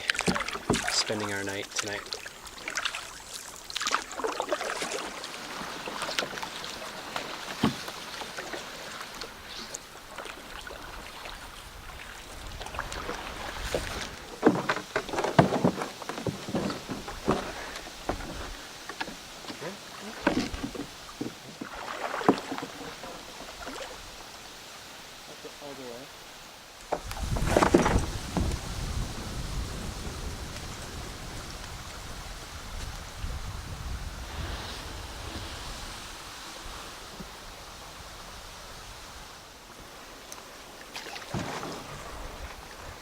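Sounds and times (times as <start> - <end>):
paddle strokes in water: 0.0 - 43.0
sharp knocks on canoe: 0.1 - 1.0, 7.1 - 8.6, 12.9 - 23.2, 26.9 - 28.6, 41.2 - 42.1.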